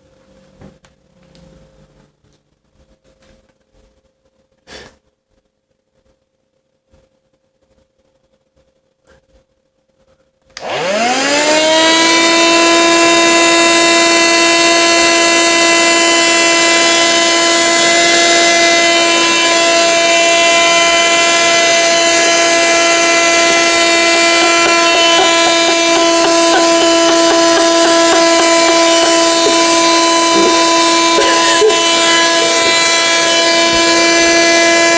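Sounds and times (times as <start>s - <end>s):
vacuum cleaner motor whining: 10.6s - 34.9s.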